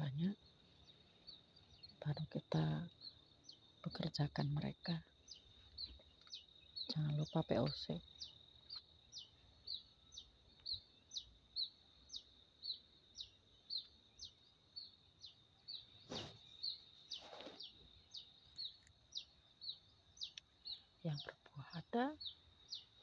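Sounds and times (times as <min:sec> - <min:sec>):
bird chirping: 0:00.0 - 0:23.0
rustle: 0:15.9 - 0:18.9.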